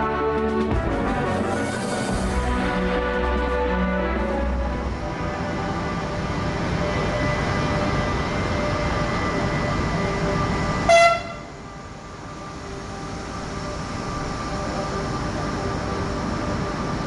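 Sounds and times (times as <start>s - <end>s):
light rail train horn toot: 10.7s - 11.6s.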